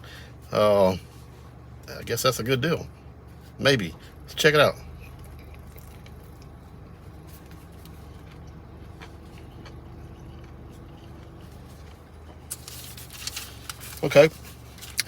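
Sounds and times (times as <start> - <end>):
steady low hum: 0.0 - 15.0
faint chewing clicks: 5.0 - 12.6.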